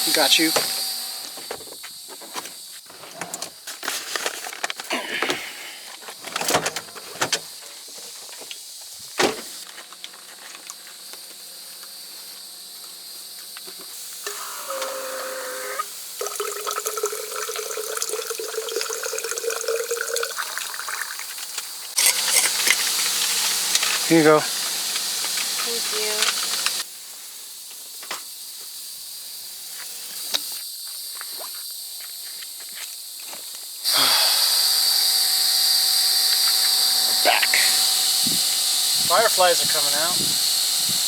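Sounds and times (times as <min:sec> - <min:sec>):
water pouring into a container: 0:16.2 - 0:21.4.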